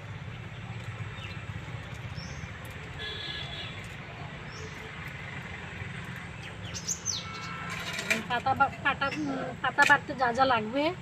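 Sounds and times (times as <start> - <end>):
low outdoor background hum: 0.0 - 11.0
high bird chirps: 6.4 - 7.7.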